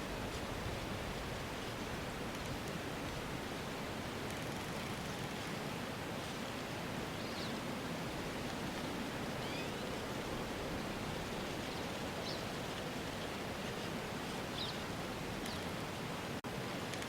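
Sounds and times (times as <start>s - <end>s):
rushing outdoor ambience: 0.0s - 17.0s.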